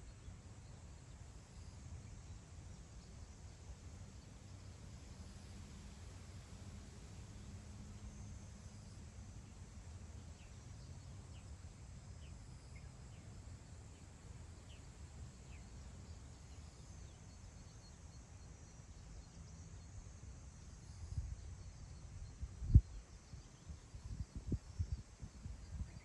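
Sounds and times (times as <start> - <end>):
low wind rumble: 21.0 - 26.0.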